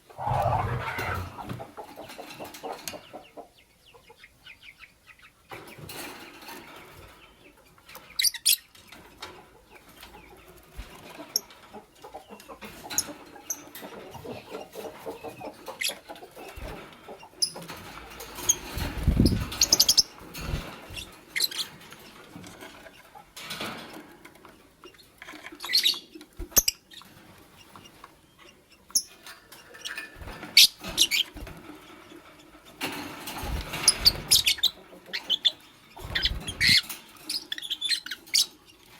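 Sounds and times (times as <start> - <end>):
wing flapping: 0.1 - 1.7, 18.3 - 21.1, 33.0 - 34.7, 36.0 - 36.9.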